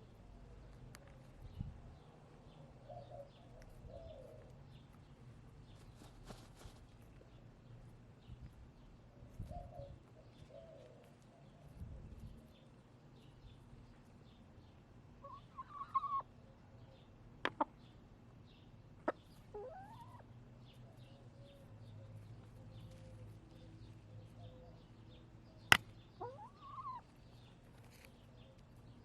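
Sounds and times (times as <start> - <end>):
small birds chirping: 0.0 - 29.0
hen wavering calls: 15.2 - 16.2, 26.2 - 27.0
hens clucking: 15.2 - 16.3, 17.4 - 17.8, 19.0 - 20.3, 25.7 - 27.1.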